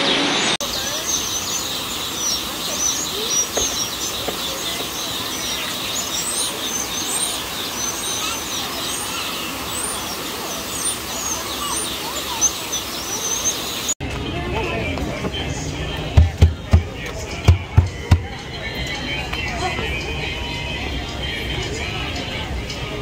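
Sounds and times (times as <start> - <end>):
small birds chirping: 0.0 - 14.0
steady background hum: 0.3 - 14.0.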